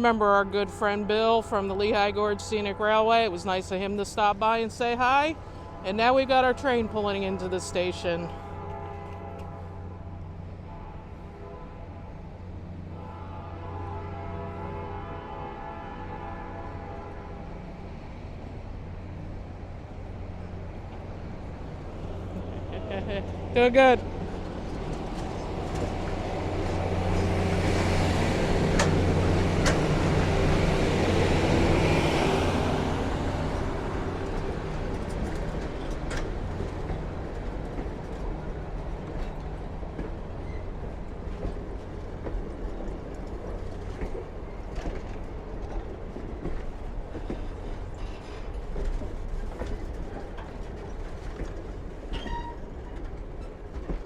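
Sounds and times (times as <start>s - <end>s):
train wheels clicking over rail joints: 24.0s - 31.8s, 33.3s - 54.0s.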